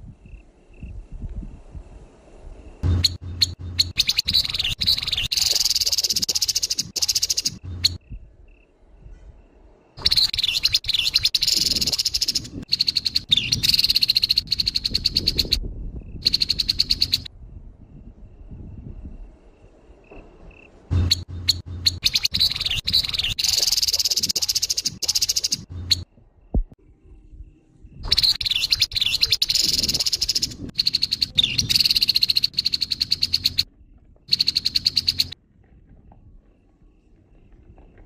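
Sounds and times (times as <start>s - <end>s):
bird harsh rattling calls: 2.8s - 8.0s, 10.0s - 15.6s, 16.2s - 17.3s, 21.0s - 26.0s, 28.1s - 33.7s, 34.3s - 35.4s.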